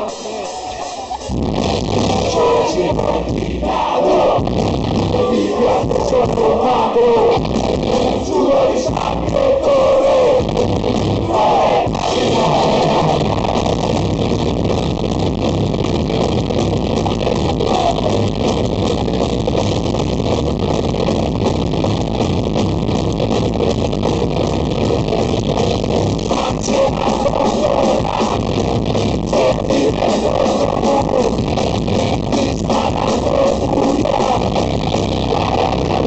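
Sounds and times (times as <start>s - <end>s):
loud rock music with electric guitar: 0.0s - 36.0s.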